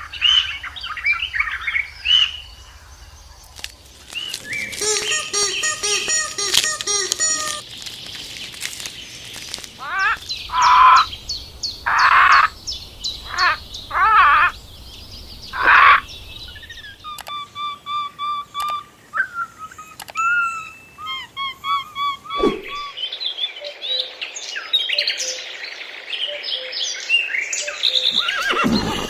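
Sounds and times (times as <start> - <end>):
high chirping: 4.0 - 23.0, 27.6 - 29.0
loud wavering animal calls: 4.3 - 7.6, 9.8 - 11.2, 11.8 - 12.6, 13.2 - 14.6, 15.5 - 16.2, 20.2 - 22.9, 28.0 - 29.0.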